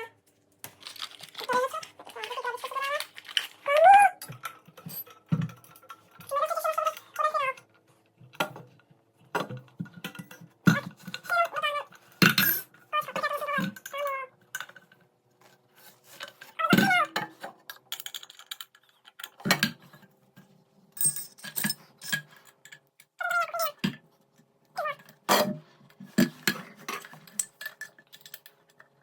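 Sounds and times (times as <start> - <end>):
metal parts clinking and knocking: 4.2 - 7.6, 16.1 - 20.0, 21.0 - 24.0, 26.2 - 29.0.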